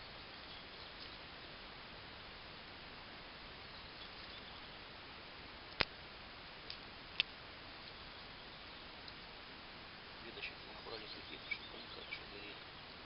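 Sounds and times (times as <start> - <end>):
light ticks of twigs: 0.0 - 1.7, 3.6 - 4.8, 5.6 - 6.0, 6.6 - 9.5, 10.2 - 12.9
steady low hiss: 0.0 - 13.0.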